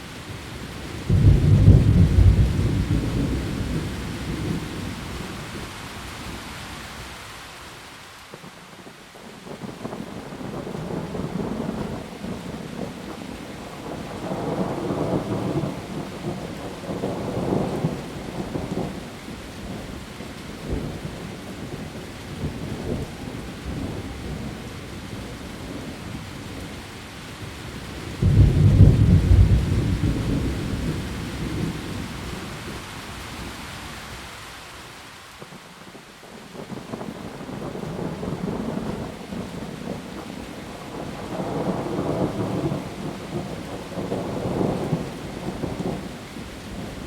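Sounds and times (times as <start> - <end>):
heavy rain falling: 0.0 - 47.0
rolling thunder: 1.1 - 5.0, 28.2 - 32.8.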